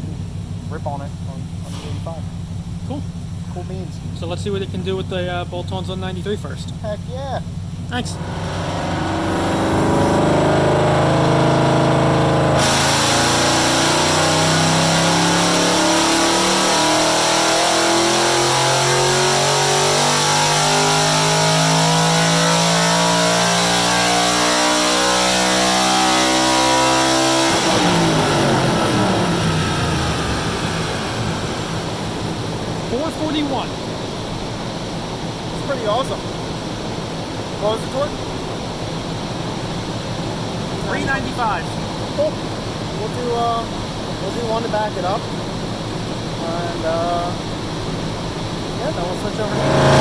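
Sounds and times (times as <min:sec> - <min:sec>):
dyno rollers coasting: 0:00.0 - 0:50.0
car engine revving on dyno: 0:07.9 - 0:50.0.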